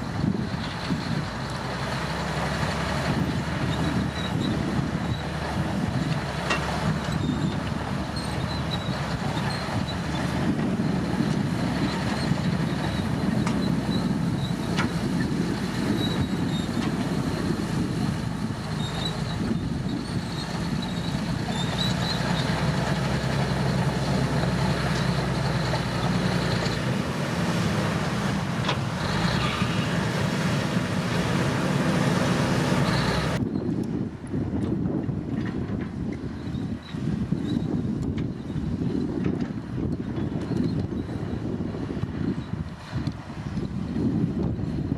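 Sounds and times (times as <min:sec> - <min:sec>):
bulldozer diesel engine running: 0:00.0 - 0:44.9
faint high squeaks: 0:29.0 - 0:29.9.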